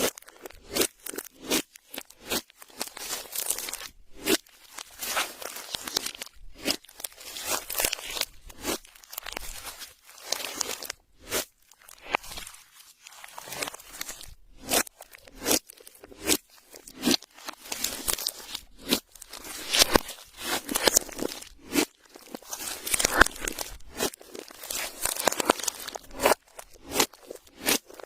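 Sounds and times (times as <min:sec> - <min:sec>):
slime squishing and popping: 0:13.1 - 0:28.0.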